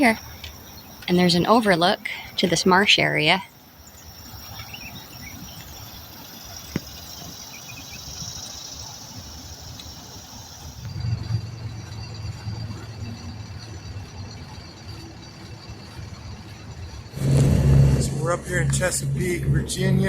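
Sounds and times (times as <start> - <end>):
faint bird chirps: 3.5 - 11.0
low engine hum: 4.6 - 20.0.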